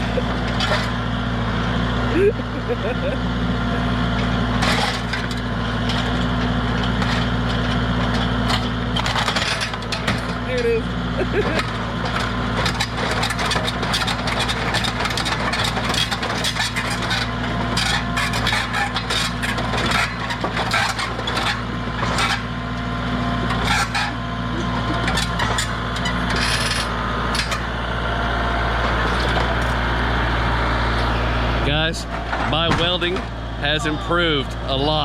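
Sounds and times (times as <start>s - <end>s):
tools scraping and clicking on engine: 0.0s - 1.0s, 4.6s - 10.4s, 11.4s - 22.6s, 23.5s - 27.7s.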